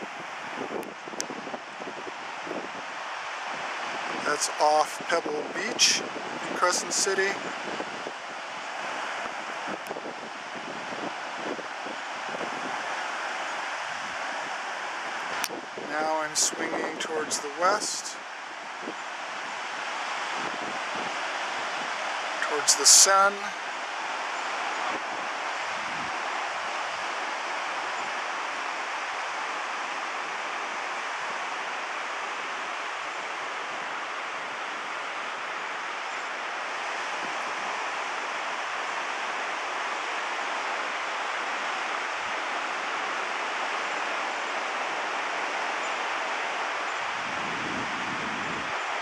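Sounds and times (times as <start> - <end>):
ocean surf breaking: 0.0 - 49.0.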